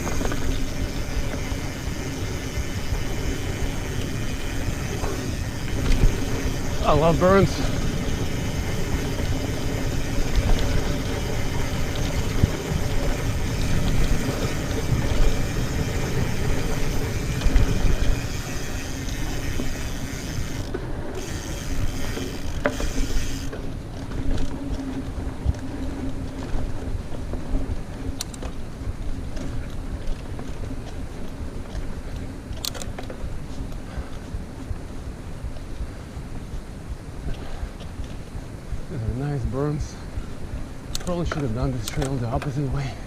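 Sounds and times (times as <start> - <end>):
wind rushing over microphone: 0.0 - 19.8
bicycle hub buzzing: 0.0 - 28.4
tyres rumbling over dirt: 0.0 - 31.4.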